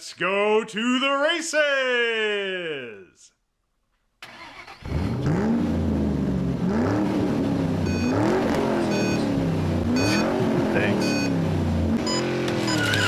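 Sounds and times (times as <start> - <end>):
racing car engines revving: 4.8 - 13.0.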